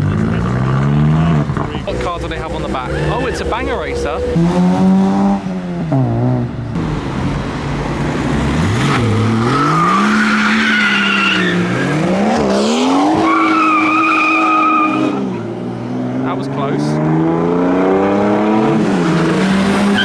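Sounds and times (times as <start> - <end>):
car engine revving: 0.0 - 20.0
tyres squealing: 1.6 - 4.5, 8.8 - 12.1, 13.0 - 15.2.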